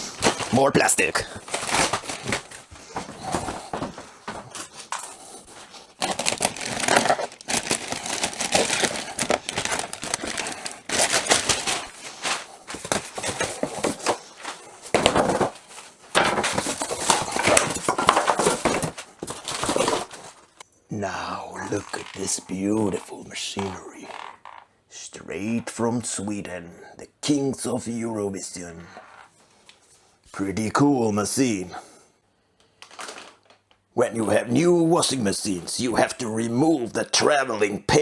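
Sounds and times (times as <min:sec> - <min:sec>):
plastic film crinkling: 0:00.0 - 0:20.6, 0:21.6 - 0:24.6, 0:32.7 - 0:33.8.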